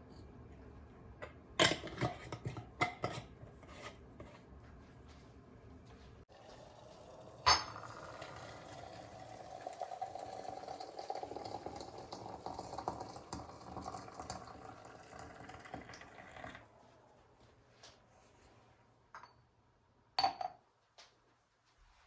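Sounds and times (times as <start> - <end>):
liquid running or bubbling: 6.3 - 16.7.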